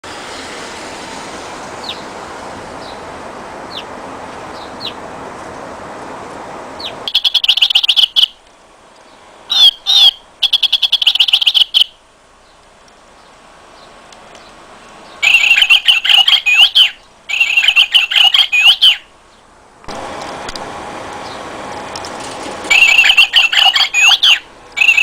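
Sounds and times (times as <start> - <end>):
robotic toy bird chirping: 6.8 - 8.4, 9.5 - 12.0, 15.2 - 19.1, 22.7 - 25.0.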